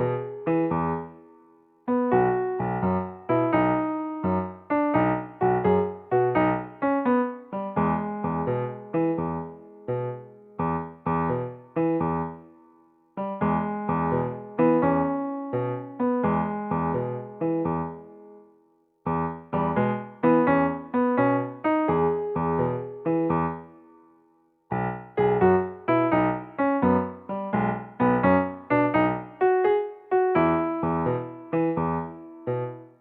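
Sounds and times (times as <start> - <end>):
light keyboard tune: 24.7 - 33.0.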